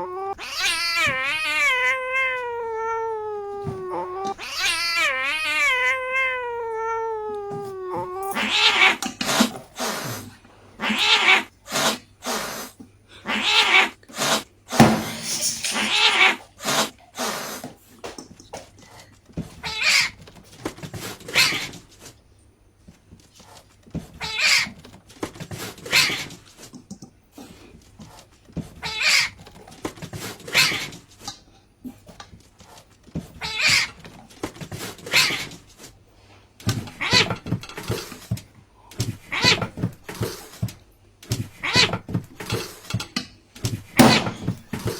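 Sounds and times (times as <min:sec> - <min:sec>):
cat meowing: 0:00.0 - 0:10.1, 0:10.8 - 0:11.5, 0:13.2 - 0:16.9, 0:19.6 - 0:20.2, 0:24.2 - 0:24.8, 0:28.8 - 0:29.4, 0:33.4 - 0:34.2, 0:35.0 - 0:35.6, 0:36.8 - 0:37.9, 0:39.2 - 0:40.4, 0:41.5 - 0:42.1.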